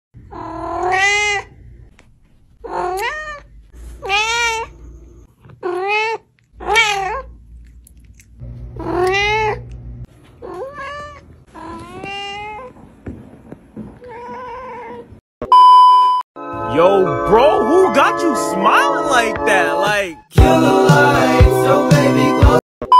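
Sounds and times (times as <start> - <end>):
cats meowing: 0.2 - 1.5, 2.6 - 4.8, 5.4 - 7.4, 8.8 - 9.7, 10.4 - 12.8.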